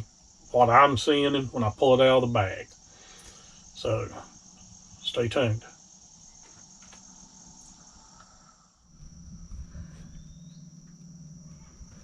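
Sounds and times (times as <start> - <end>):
low hum: 0.0 - 12.0
high-pitched whine: 3.7 - 12.0.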